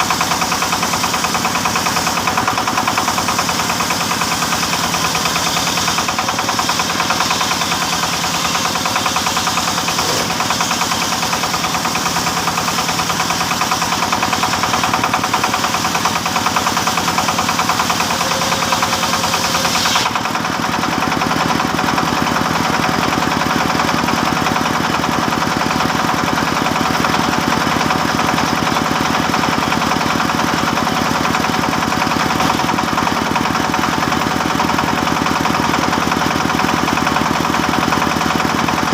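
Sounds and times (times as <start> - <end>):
engine-driven saw running: 0.0 - 38.9
saw sawing wood hiss: 3.0 - 14.6, 15.4 - 20.4.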